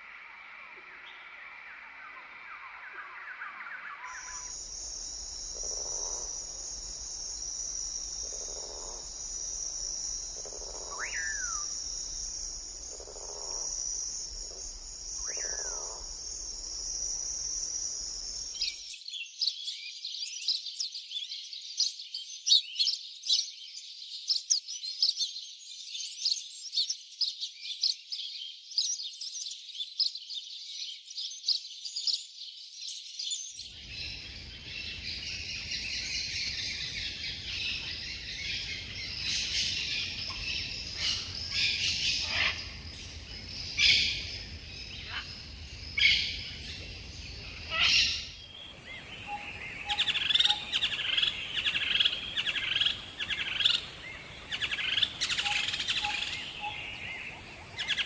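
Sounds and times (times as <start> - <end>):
high insect drone: 4.0 - 18.9, 33.8 - 58.0
birds chirping and chattering: 4.1 - 18.8, 37.8 - 58.0.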